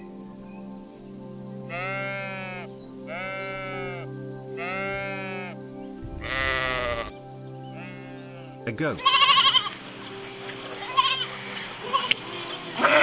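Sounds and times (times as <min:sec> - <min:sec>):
background music held chord: 0:00.0 - 0:13.0
sheep bleating: 0:01.7 - 0:05.6, 0:06.2 - 0:07.1, 0:07.8 - 0:09.8, 0:10.8 - 0:12.2, 0:12.8 - 0:13.0.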